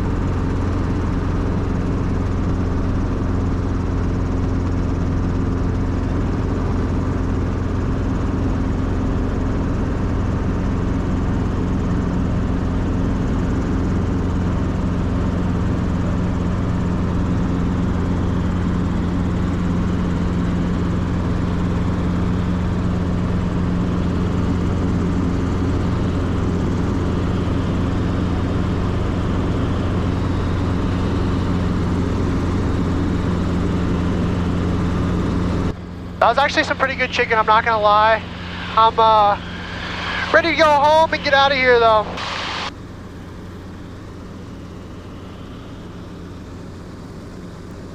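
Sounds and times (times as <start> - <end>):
helicopter engine and rotor drone: 0.0 - 47.9.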